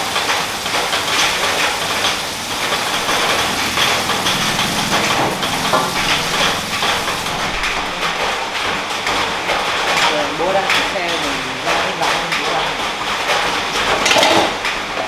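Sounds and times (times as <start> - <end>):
motorbike engine running: 0.0 - 9.0.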